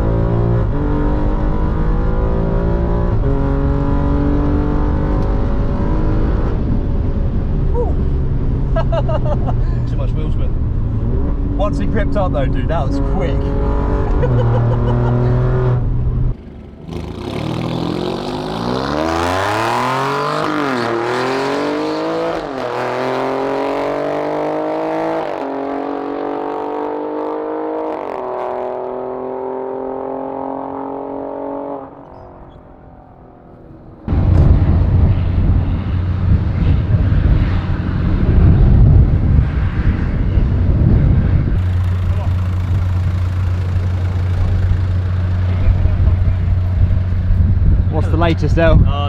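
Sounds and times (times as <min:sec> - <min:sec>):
car engine revving through gears: 0:00.0 - 0:07.0, 0:10.5 - 0:32.1, 0:41.4 - 0:48.7
loud rushing noise: 0:34.1 - 0:49.0.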